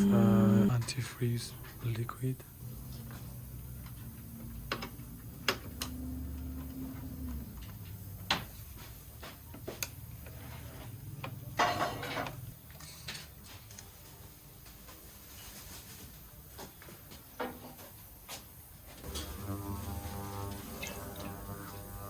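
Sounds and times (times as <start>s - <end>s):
low steady hum: 0.0s - 8.1s.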